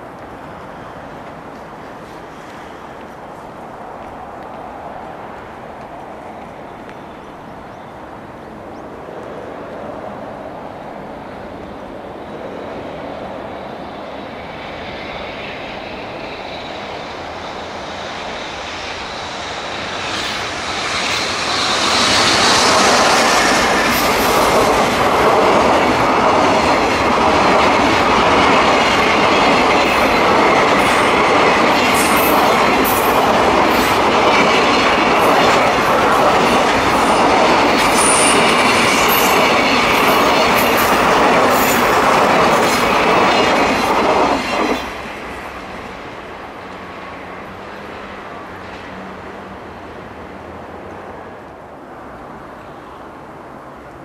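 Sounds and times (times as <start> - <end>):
freight train rumbling past: 0.0 - 54.0
high wheel squeal: 13.5 - 24.7, 34.7 - 42.2.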